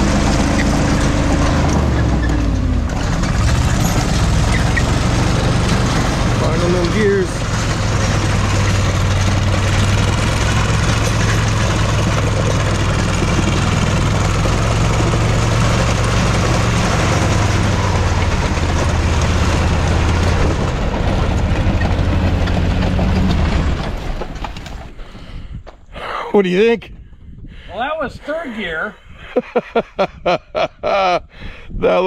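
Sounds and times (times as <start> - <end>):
snow vehicle engine under load: 0.0 - 25.3.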